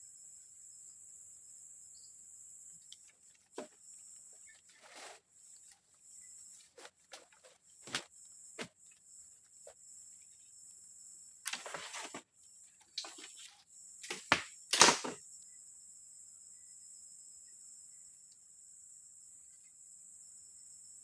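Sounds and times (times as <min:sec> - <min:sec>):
crickets chirring: 0:00.0 - 0:21.0
handling knocks and rustles: 0:06.6 - 0:08.8, 0:11.5 - 0:15.2.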